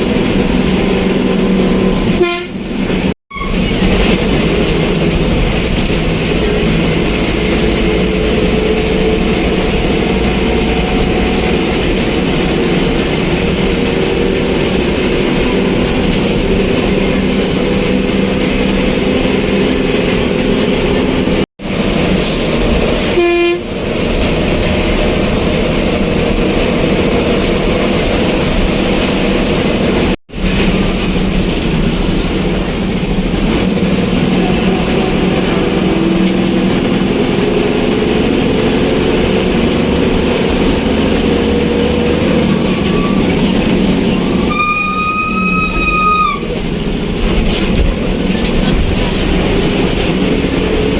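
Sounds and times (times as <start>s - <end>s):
moving vehicle noise: 0.0s - 50.9s
short horn honk: 2.1s - 2.7s, 23.0s - 23.7s, 44.3s - 46.5s.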